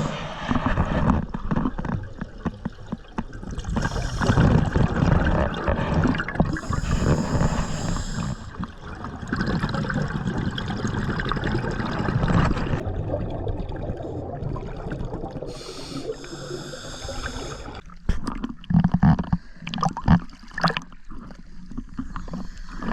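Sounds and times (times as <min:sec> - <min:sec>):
diver inhaling through regulator: 0:00.0 - 0:00.8, 0:03.7 - 0:04.8, 0:06.5 - 0:08.7, 0:15.5 - 0:17.8
exhaled bubbles gurgling: 0:00.0 - 0:22.9.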